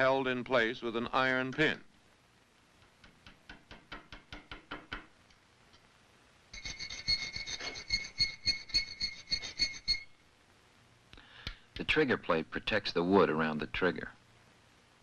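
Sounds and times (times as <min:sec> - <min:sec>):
hand file on iron: 0:06.6 - 0:10.0
metal ringing: 0:06.6 - 0:10.1.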